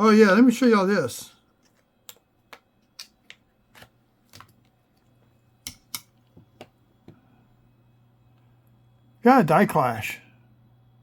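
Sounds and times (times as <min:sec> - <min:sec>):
small objects clicking on a desk: 0:01.6 - 0:07.2.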